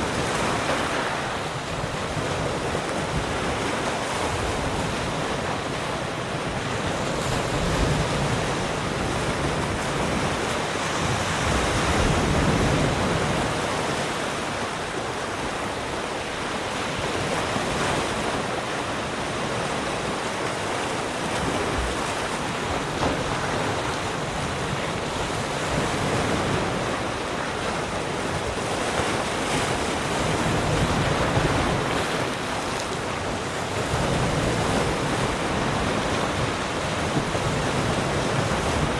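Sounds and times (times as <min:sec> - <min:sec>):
sea waves washing around rock: 0:00.0 - 0:38.9
wind on microphone: 0:00.0 - 0:38.9.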